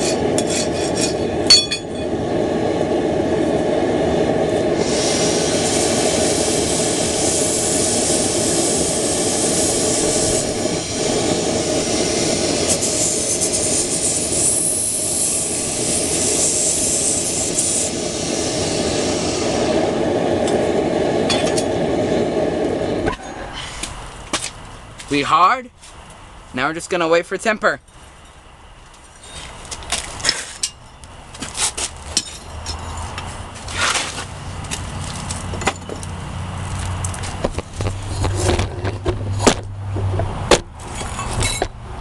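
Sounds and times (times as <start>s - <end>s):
forge rushing and humming: 0.0s - 24.0s
bright hiss: 4.4s - 24.1s.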